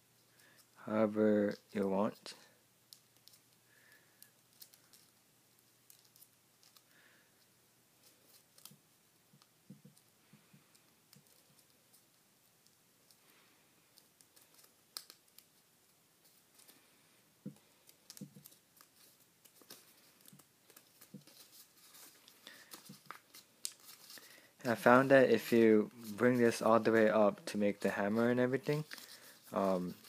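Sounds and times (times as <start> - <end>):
paper crinkling: 3.0 - 6.9, 14.0 - 15.6, 17.5 - 30.0.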